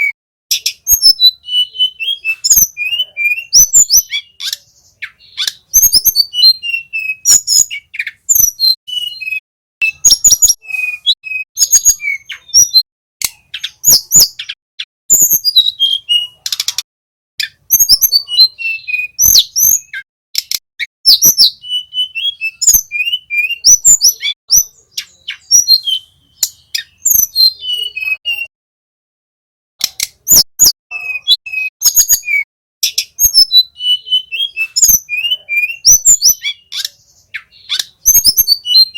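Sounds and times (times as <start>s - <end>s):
bird chirping and warbling: 0.0s - 28.5s, 29.8s - 38.9s
sharp bird clicks: 2.3s - 8.6s, 11.6s - 14.6s, 16.3s - 18.0s, 19.2s - 21.5s, 26.4s - 27.3s, 29.8s - 32.2s, 34.6s - 38.8s.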